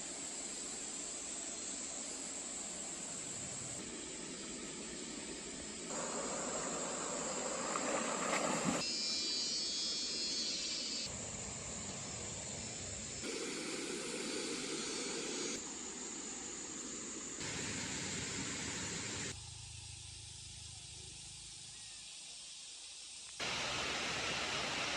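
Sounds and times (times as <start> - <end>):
insects buzzing: 0.0 - 24.9
rushing stream water: 5.9 - 8.8, 23.4 - 24.9.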